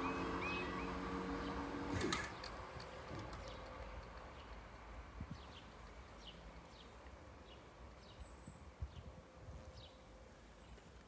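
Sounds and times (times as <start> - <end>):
faint bird chirping: 0.0 - 1.7
low outdoor rumble: 0.0 - 7.6.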